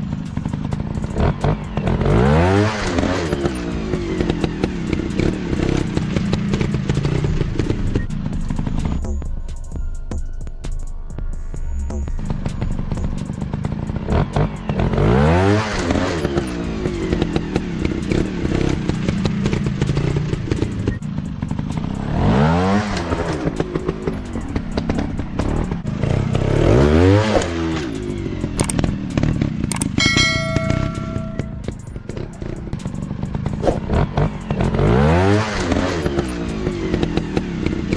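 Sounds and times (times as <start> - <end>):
dirt bike engine revving: 0.0 - 9.0, 12.2 - 37.9.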